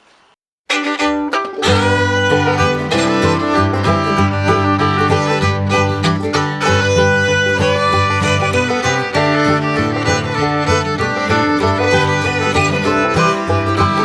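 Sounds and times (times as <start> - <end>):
upbeat bluegrass music: 0.7 - 14.0.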